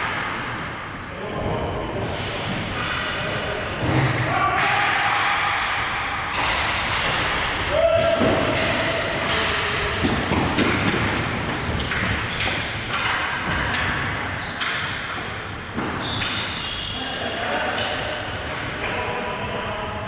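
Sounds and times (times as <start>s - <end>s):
hockey sticks knocking puck: 6.3s - 16.8s
short squeaks: 16.0s - 17.1s.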